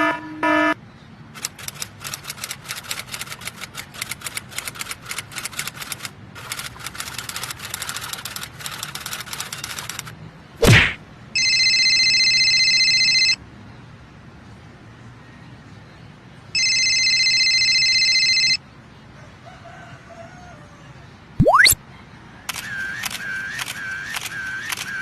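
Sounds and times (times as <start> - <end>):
electronic telephone ringing: 11.4 - 13.4, 16.6 - 18.6.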